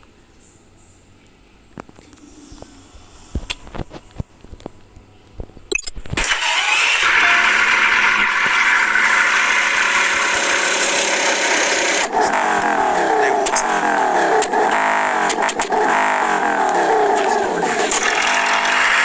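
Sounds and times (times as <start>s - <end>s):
clicks: 3.4s - 8.8s
car engine starting and idling: 6.2s - 19.0s.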